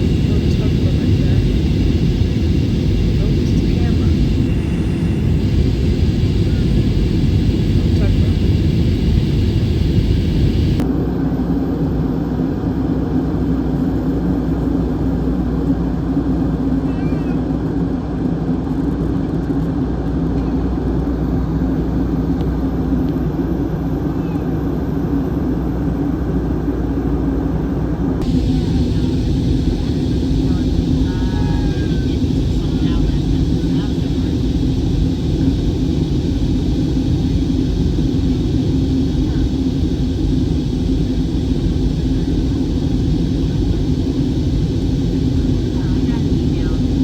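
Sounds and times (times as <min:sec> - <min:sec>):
jet airliner cabin noise: 0:00.0 - 0:10.8, 0:28.2 - 0:47.0
low hum: 0:00.0 - 0:10.8, 0:28.2 - 0:47.0.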